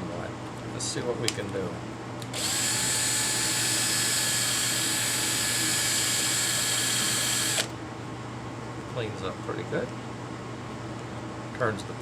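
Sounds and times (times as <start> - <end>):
power drill running: 2.3 - 7.8.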